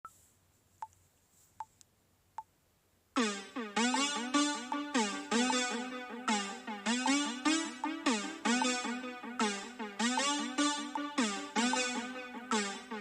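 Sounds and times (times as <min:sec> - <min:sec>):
electronic synthesizer music: 0:03.2 - 0:13.0.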